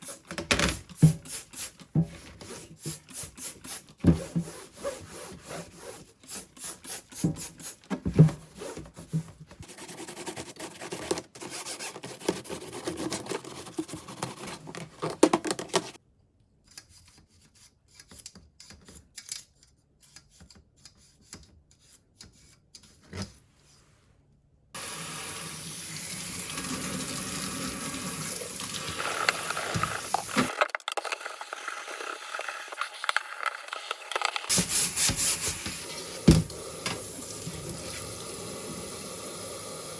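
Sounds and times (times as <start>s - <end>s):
rubbing and scrubbing: 1.1s - 16.0s, 32.0s - 35.9s
tap water running into sink: 24.8s - 30.5s, 35.6s - 39.9s.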